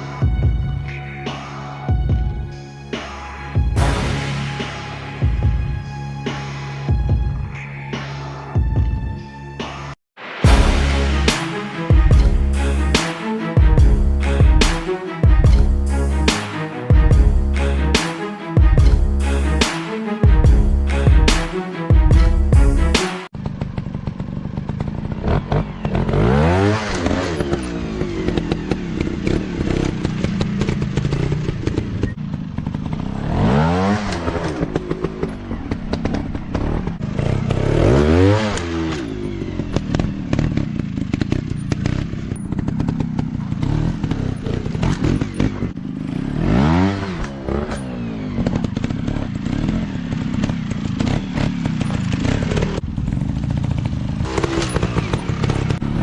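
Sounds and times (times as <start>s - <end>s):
dirt bike engines revving: 22.8s - 56.0s
engine clattering: 23.4s - 56.0s.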